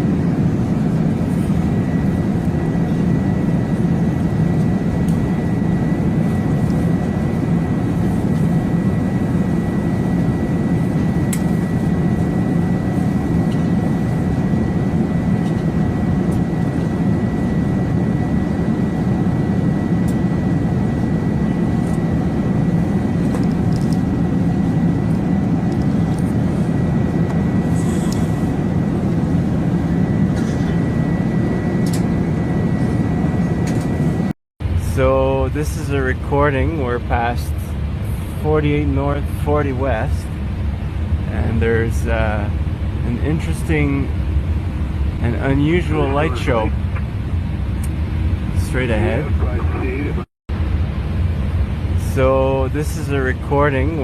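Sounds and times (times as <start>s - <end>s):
cockpit rushing drone: 44.7s - 50.3s.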